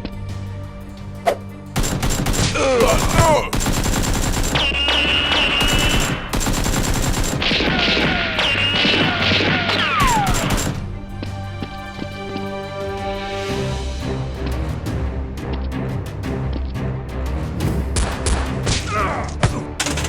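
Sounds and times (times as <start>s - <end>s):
background music: 0.0s - 20.0s
automatic gunfire: 1.8s - 10.8s
falling whistle-like tones: 8.4s - 9.2s.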